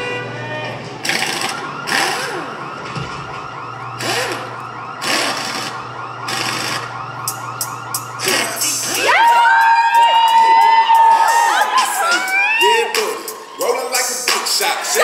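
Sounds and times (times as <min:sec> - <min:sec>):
siren-like electronic whine: 0:01.1 - 0:10.0.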